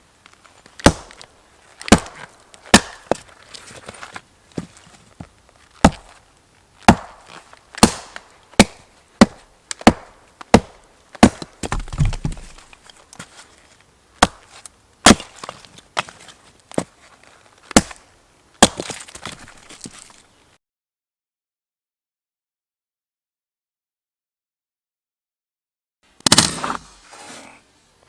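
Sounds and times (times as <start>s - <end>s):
axe chopping wood: 0.8s - 3.3s, 5.8s - 6.2s, 6.8s - 12.6s, 14.2s - 16.1s, 17.7s - 18.0s, 18.6s - 19.9s.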